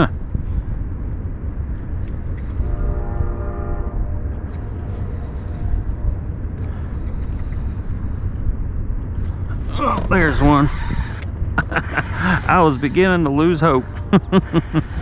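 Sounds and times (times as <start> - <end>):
low rumble: 0.0 - 15.0
distant horn: 2.4 - 6.5.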